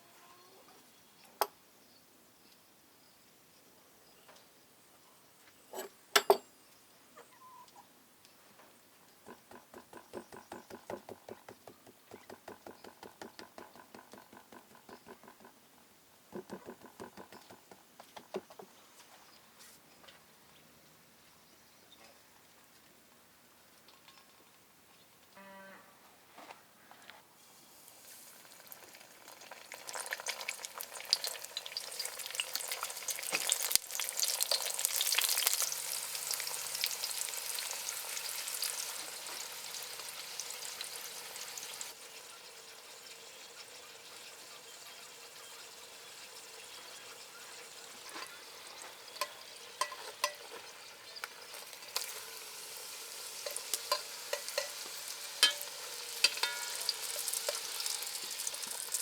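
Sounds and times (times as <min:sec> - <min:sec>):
food frying in hot oil: 0:09.3 - 0:11.3, 0:27.6 - 0:59.0
oil pops and crackles: 0:28.0 - 0:40.1, 0:51.2 - 0:59.0.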